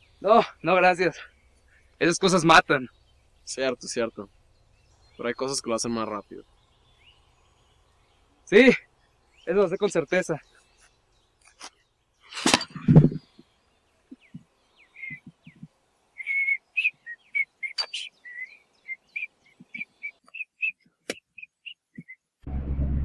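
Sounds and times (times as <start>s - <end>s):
bird chirping whistled notes: 14.1s - 22.3s
steady low drone: 22.4s - 23.0s.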